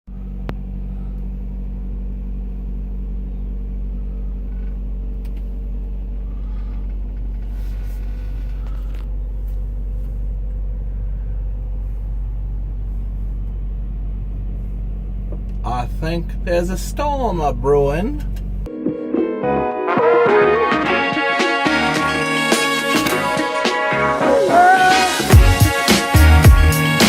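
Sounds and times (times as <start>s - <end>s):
truck engine idling: 0.1s - 18.7s.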